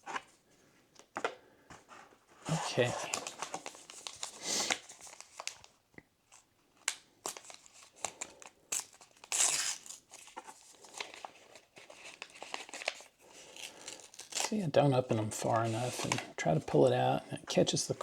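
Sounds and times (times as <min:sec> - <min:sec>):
wrapper crinkling and tearing: 0:02.5 - 0:14.8.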